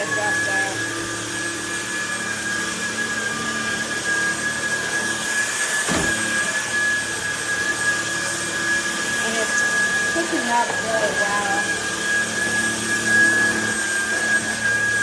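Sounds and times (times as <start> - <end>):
stick vacuum running: 0.0 - 15.0.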